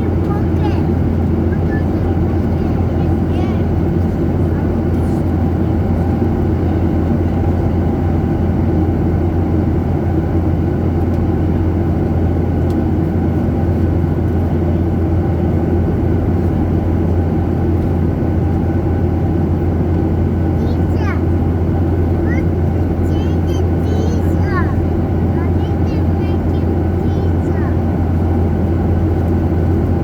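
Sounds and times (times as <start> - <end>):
airliner cabin engine drone: 0.0 - 30.0.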